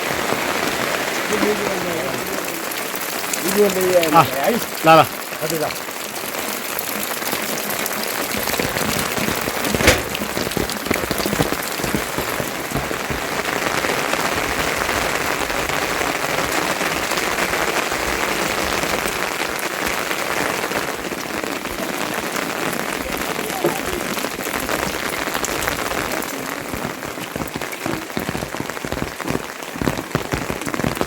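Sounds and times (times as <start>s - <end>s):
steady rain falling: 0.0s - 31.0s
sharp knock: 9.8s - 10.7s.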